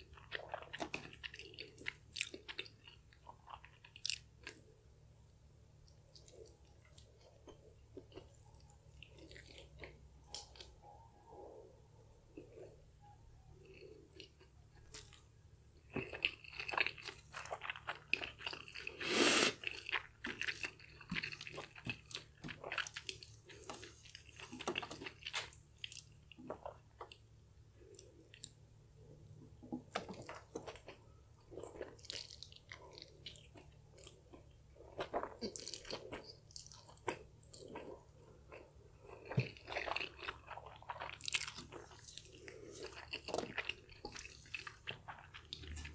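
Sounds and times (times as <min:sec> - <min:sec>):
wet chewing and lip smacking: 0:19.6 - 0:27.2, 0:29.8 - 0:45.9.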